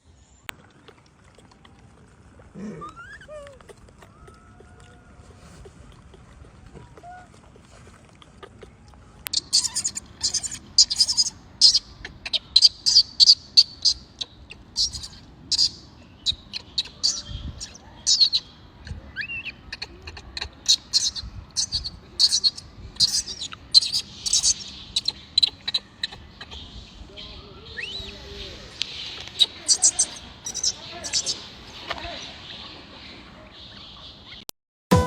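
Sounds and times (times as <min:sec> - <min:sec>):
small birds chirping: 0:08.4 - 0:34.5.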